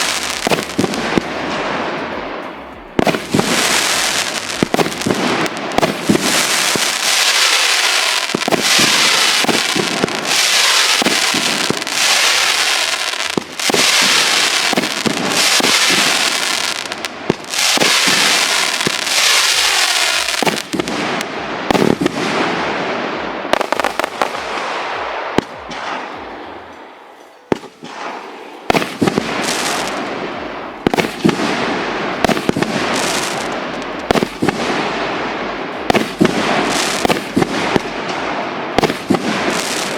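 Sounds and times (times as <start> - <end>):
fireworks launches and bursts: 0.0 - 26.5, 27.5 - 39.9
hissing crackle of fireworks: 0.0 - 39.9.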